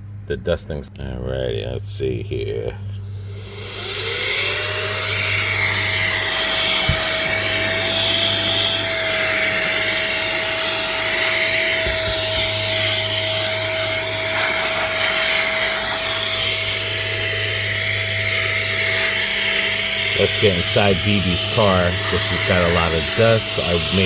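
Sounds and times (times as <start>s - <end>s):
air duster motor whining: 2.8s - 24.0s.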